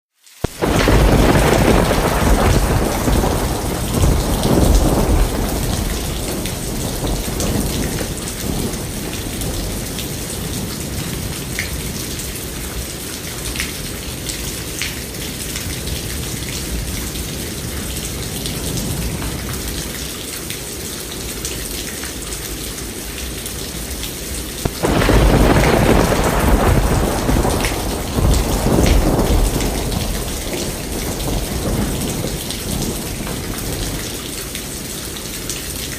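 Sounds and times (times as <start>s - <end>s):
heavy rain falling: 0.2s - 35.9s
loud thunderclap: 0.4s - 11.5s, 24.7s - 34.5s
thunder rumbling: 0.4s - 12.3s, 24.7s - 35.4s.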